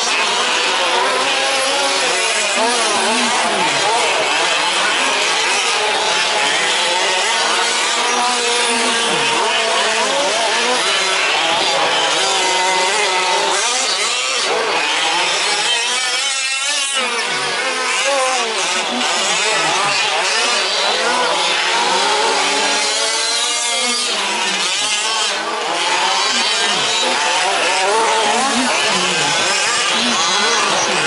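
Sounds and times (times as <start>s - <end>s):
small two-stroke engines revving: 0.0s - 31.0s.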